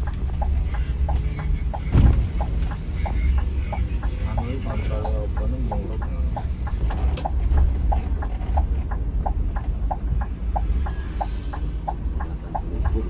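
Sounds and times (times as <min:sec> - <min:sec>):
bus engine rumble: 0:00.0 - 0:13.0
road noise: 0:00.0 - 0:13.0
turn signal ticking: 0:00.0 - 0:13.0.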